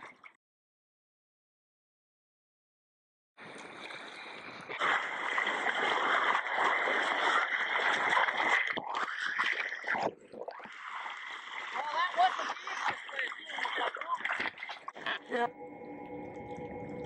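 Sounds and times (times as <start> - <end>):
sea water splashing around kayak: 3.4 - 15.4.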